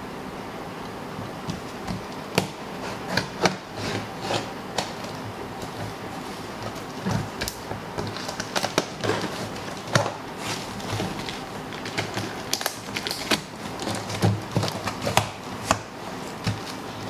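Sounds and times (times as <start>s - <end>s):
knife cutting cardboard carton: 2.4s - 5.1s.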